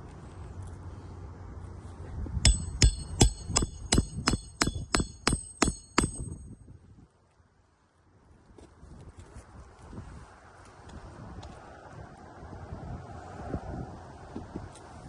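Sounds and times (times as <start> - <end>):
hammer striking metal: 2.4 - 6.6.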